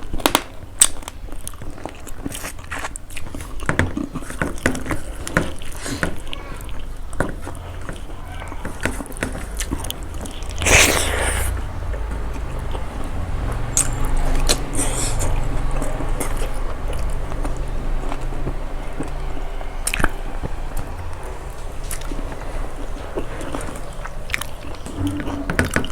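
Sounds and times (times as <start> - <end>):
person chewing food: 0.8 - 11.7, 12.3 - 19.2, 21.8 - 22.4.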